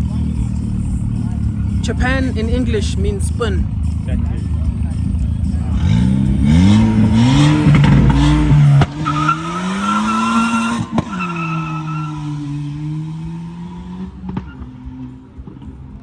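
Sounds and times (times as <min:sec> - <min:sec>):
car engine revving: 0:00.0 - 0:16.0
tyres squealing: 0:06.5 - 0:13.0.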